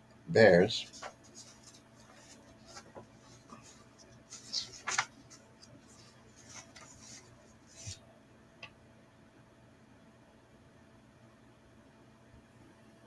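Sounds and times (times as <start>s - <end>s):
rustling handling noise: 0.6s - 8.0s.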